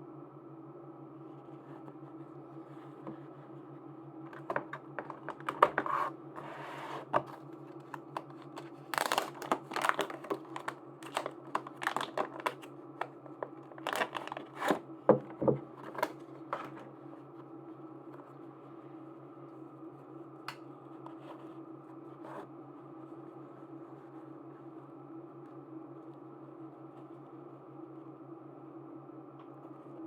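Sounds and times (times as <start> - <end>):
faint steady hum: 0.0 - 30.0
plastic packaging crinkling: 4.3 - 5.9, 7.0 - 14.8, 15.8 - 16.8
plastic tearing: 7.0 - 14.8, 15.8 - 16.8.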